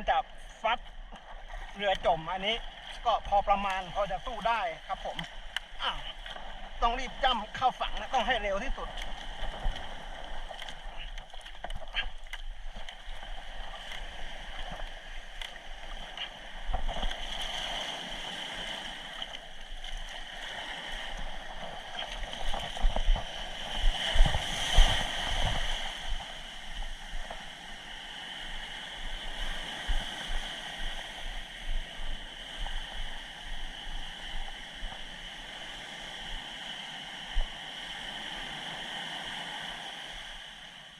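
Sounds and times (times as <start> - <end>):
paddle splashes: 0.0 - 40.8
surf: 0.0 - 40.9
waves thumping boat: 0.0 - 40.9
wind on microphone: 20.1 - 36.5.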